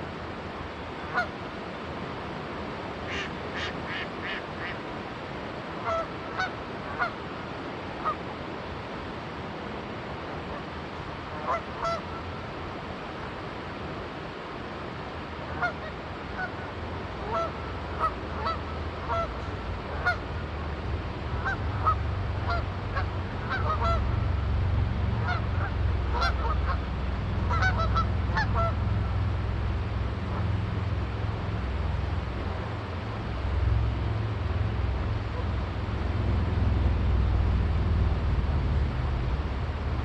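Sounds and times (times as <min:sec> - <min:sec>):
river rushing: 0:00.0 - 0:40.0
geese honking: 0:05.8 - 0:07.1, 0:11.4 - 0:12.0, 0:17.2 - 0:20.2, 0:21.4 - 0:24.2, 0:25.1 - 0:28.9
low engine rumble: 0:16.9 - 0:40.0.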